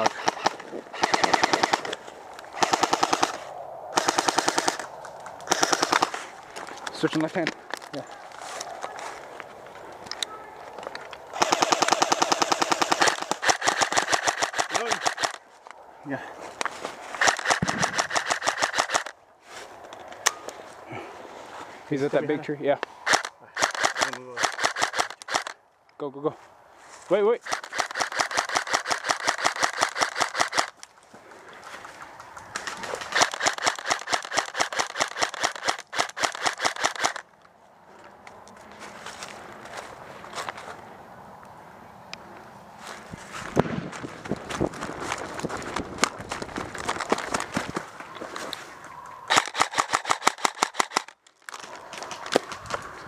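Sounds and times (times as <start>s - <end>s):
airsoft rifle rapid fire: 0.0s - 2.0s, 2.6s - 3.4s, 4.0s - 4.9s, 5.5s - 6.2s, 11.4s - 15.4s, 17.2s - 19.1s, 23.1s - 25.6s, 27.4s - 30.7s, 33.1s - 37.2s, 49.3s - 51.2s.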